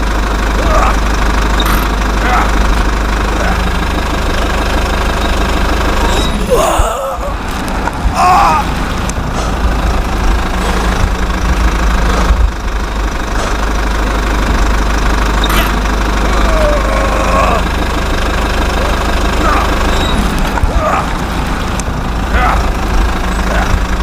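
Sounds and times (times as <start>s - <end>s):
engine rumbling: 0.0s - 24.0s
short high squeals: 0.6s - 2.6s, 6.0s - 6.8s, 15.4s - 16.8s, 18.8s - 20.4s.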